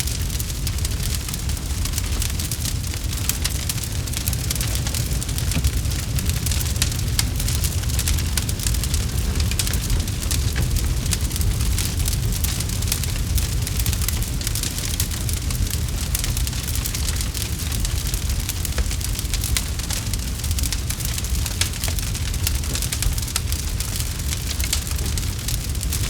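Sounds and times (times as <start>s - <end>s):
burning wood crackling and popping: 0.0s - 26.0s
low rumble of flames: 0.0s - 26.0s.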